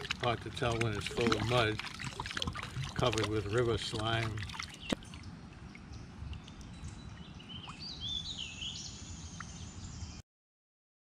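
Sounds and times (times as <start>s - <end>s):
bird whistling song: 6.4s - 10.2s.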